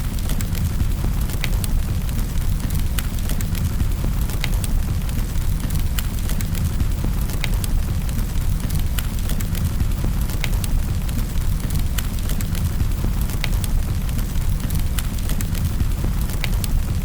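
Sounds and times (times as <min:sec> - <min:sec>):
fire crackling and popping: 0:00.0 - 0:17.0
low fire rumble: 0:00.0 - 0:17.0.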